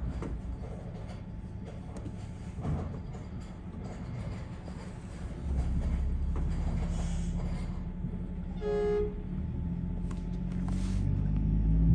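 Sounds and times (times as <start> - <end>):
truck diesel engine rumble: 3.4 - 11.9
short horn toot: 8.5 - 9.3.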